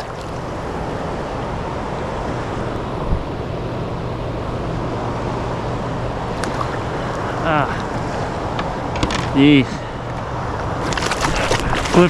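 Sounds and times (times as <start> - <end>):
fast-moving river water: 0.0 - 1.1, 6.3 - 8.4, 10.8 - 12.0
low steady hum: 0.0 - 12.0.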